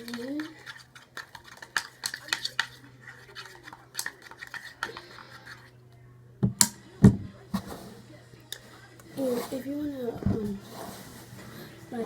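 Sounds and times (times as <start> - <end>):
utensil scraping a bowl: 0.0 - 5.8.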